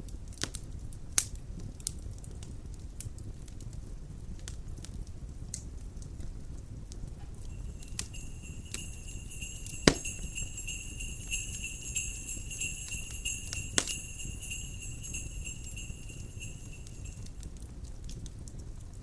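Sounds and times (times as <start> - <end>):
wood fire crackling: 0.0 - 19.0
fire popping: 0.3 - 19.0
jingle bells shaking: 7.4 - 17.4.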